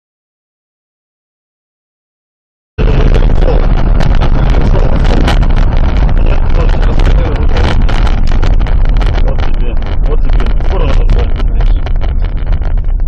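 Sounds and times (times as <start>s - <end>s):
crackling ticks: 2.8s - 13.0s
vehicle rumble: 2.8s - 13.0s
wind buffeting microphone: 2.8s - 13.0s.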